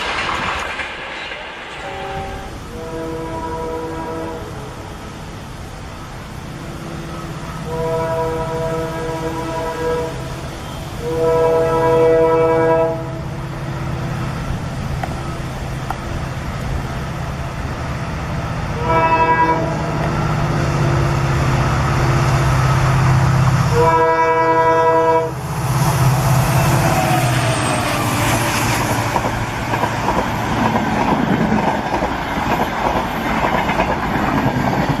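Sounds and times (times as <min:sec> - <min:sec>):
train running hum: 0:00.0 - 0:35.0
train horn: 0:01.7 - 0:04.9, 0:06.5 - 0:14.2, 0:18.7 - 0:29.2.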